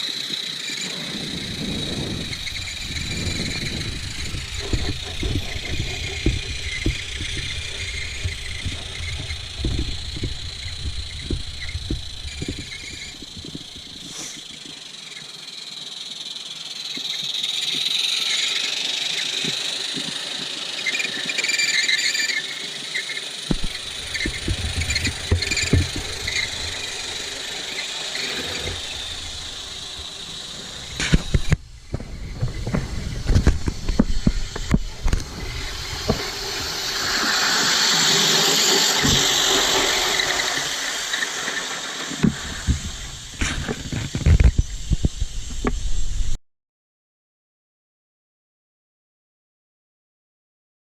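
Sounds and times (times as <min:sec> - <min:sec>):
steam hissing: 0:00.0 - 0:46.4
low knocks and thumps: 0:01.4 - 0:14.0, 0:23.5 - 0:27.6.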